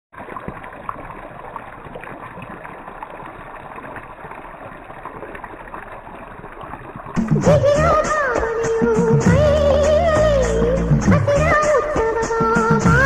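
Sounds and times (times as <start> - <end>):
small ticks and splashes: 0.2 - 7.4
flowing water rushing: 0.2 - 13.0.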